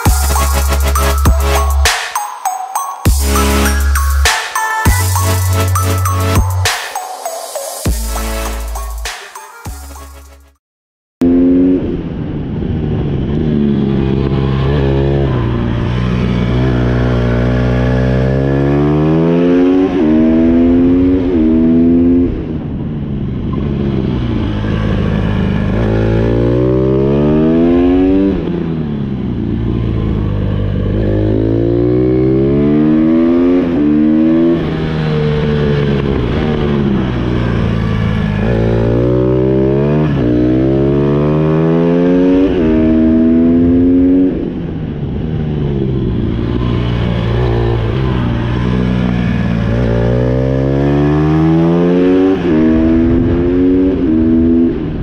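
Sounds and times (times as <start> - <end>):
motorcycle engine revving: 11.2 - 22.4, 23.4 - 54.9.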